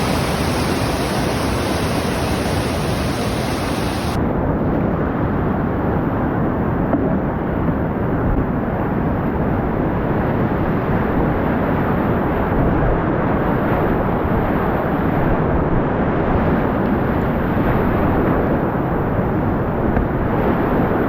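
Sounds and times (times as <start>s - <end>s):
whitewater rapids rushing: 0.0s - 4.2s.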